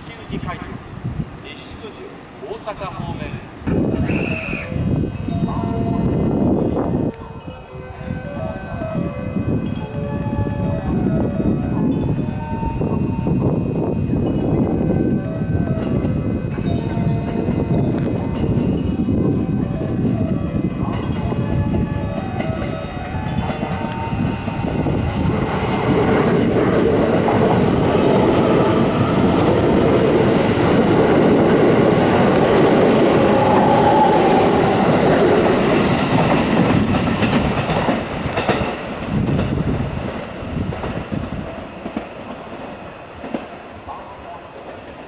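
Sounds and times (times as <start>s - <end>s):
electric train passing at speed: 0.0s - 45.0s
train wheels clattering on rails: 20.9s - 45.0s.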